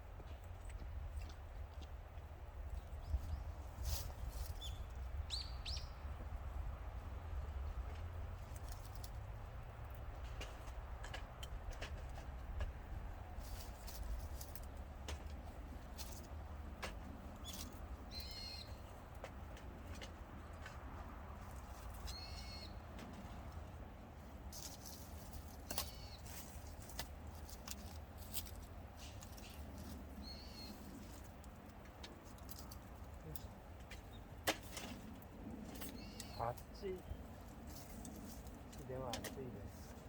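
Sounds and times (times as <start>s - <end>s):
bird calling: 17.4s - 18.9s, 22.0s - 22.8s, 25.7s - 26.3s, 35.8s - 37.0s.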